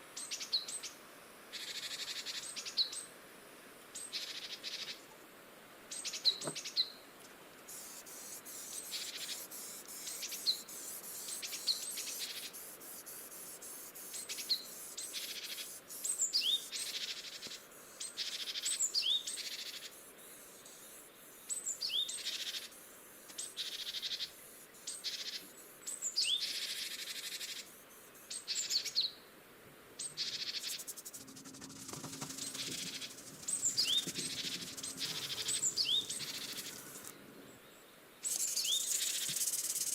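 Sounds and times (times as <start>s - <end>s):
scratchy hiss: 7.2s - 28.9s, 30.0s - 37.5s, 38.2s - 39.9s
small birds chirping: 7.7s - 29.2s, 30.0s - 39.9s.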